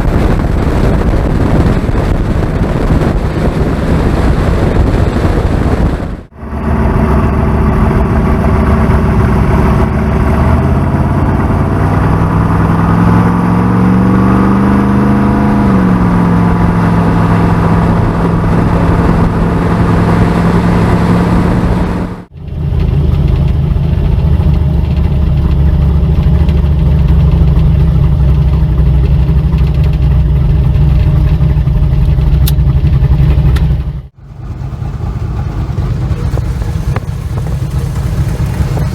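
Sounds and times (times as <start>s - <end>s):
vehicle engine idling: 21.3s - 38.9s.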